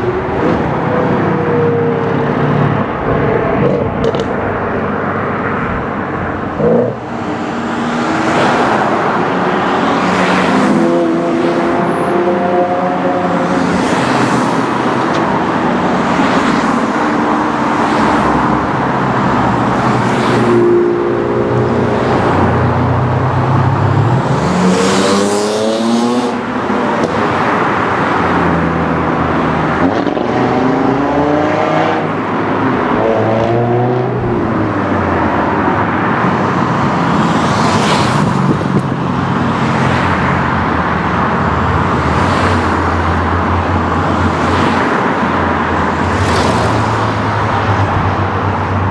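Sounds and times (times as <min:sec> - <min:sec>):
car engines running: 0:00.0 - 0:31.1
cars revving through the gears: 0:00.1 - 0:04.9, 0:05.9 - 0:48.7.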